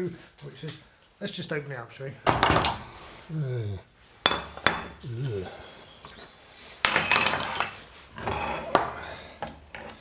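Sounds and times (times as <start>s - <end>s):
steel parts clinking and clattering: 6.0s - 10.0s.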